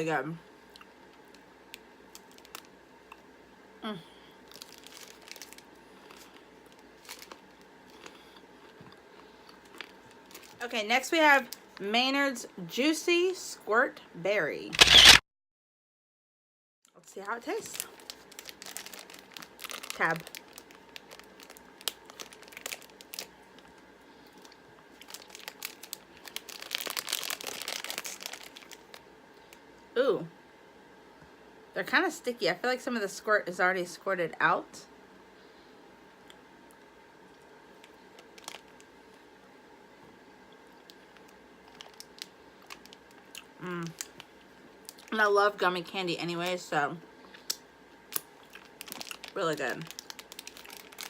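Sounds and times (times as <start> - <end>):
plastic snack wrappers crinkling: 0.8 - 3.2, 4.4 - 11.8, 17.2 - 29.6, 37.8 - 39.2, 40.7 - 46.7, 47.3 - 51.0.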